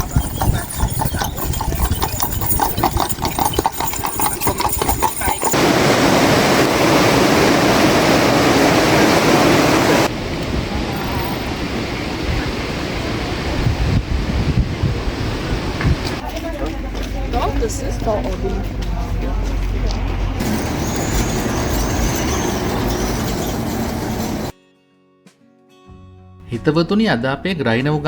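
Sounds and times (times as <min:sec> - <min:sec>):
loud steady rushing noise: 0:05.5 - 0:16.2, 0:20.3 - 0:24.5.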